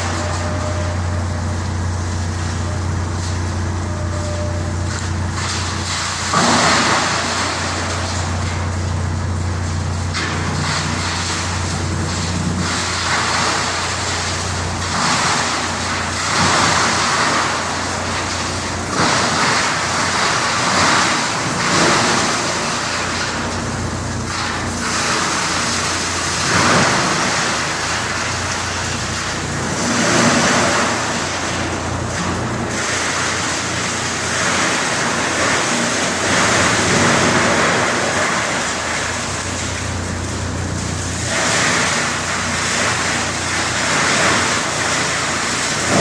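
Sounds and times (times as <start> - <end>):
wood crusher grinding wood: 0.0 - 46.0.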